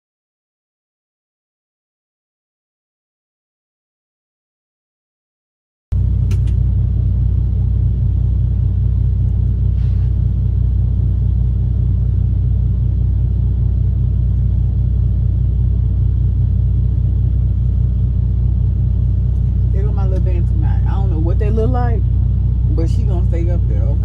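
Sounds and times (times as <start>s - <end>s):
truck engine idling: 5.9s - 24.0s.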